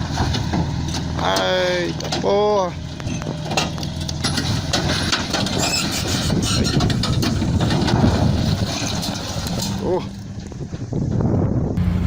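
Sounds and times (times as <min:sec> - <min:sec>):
knocks and rattles: 0:00.0 - 0:11.3
heavy engine rumbling: 0:00.0 - 0:12.0.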